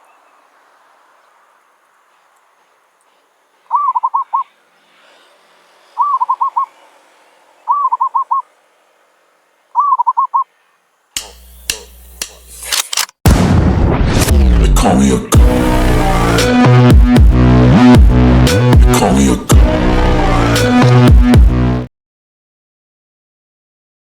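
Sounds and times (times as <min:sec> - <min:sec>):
dove cooing: 0:03.7 - 0:04.6, 0:06.0 - 0:06.8, 0:07.6 - 0:08.5, 0:09.8 - 0:10.5
low hum: 0:13.3 - 0:21.8.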